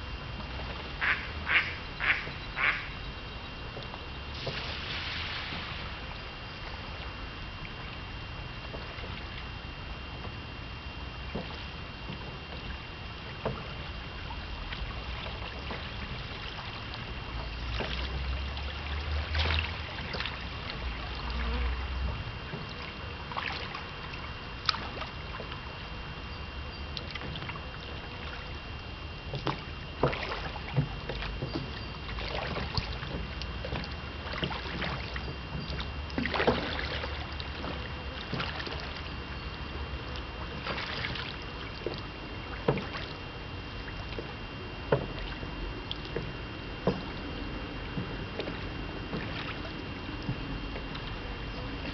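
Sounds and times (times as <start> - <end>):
knocks and splashes: 3.7 - 9.5, 11.2 - 25.8, 26.9 - 28.5, 29.2 - 43.2, 43.8 - 51.9
boat noisy rush: 26.9 - 51.9.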